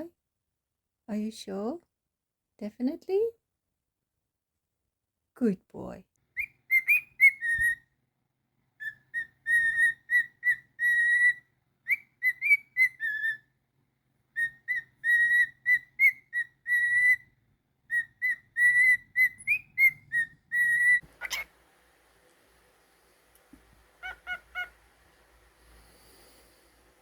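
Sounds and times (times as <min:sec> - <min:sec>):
cockatiel whistling: 0:06.4 - 0:07.8, 0:08.8 - 0:13.4, 0:14.3 - 0:17.3, 0:17.9 - 0:21.5, 0:24.0 - 0:24.8
harsh bird squawk: 0:20.6 - 0:21.6, 0:24.0 - 0:24.9.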